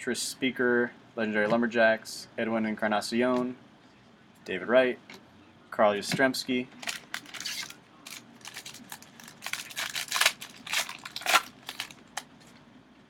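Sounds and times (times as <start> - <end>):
wrapper and cards crinkling: 6.8 - 12.3.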